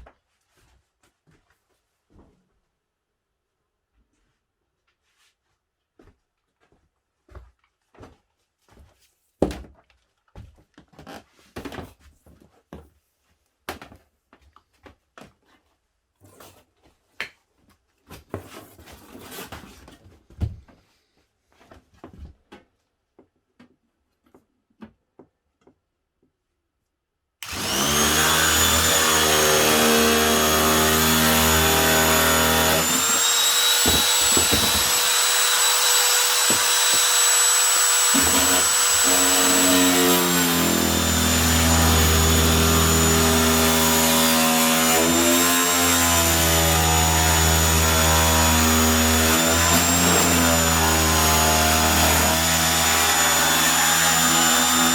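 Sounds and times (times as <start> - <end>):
electric power tool whining: 27.4 - 54.9.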